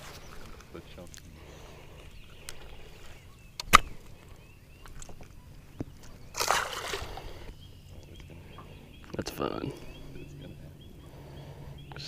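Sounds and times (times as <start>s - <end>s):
water splashing against boat: 6.0s - 7.4s.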